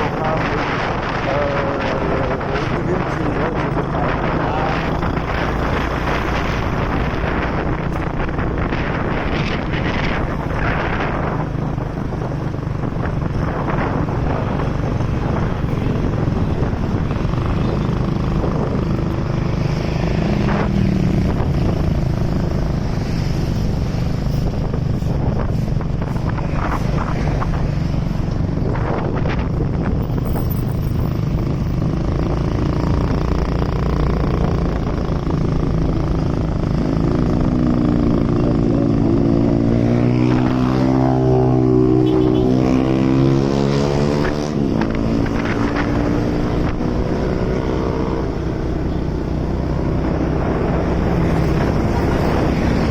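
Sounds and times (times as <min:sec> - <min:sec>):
motorcycle engine running: 0:00.0 - 0:40.5
rushing air and road noise: 0:00.0 - 0:52.9.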